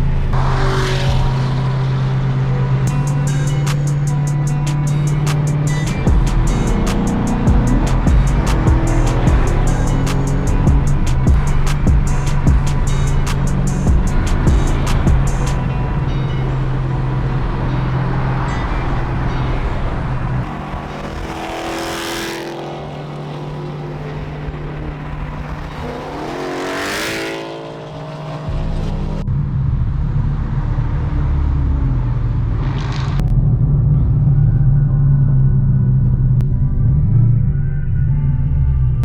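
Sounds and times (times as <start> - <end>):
car engines revving: 0.0 - 37.2.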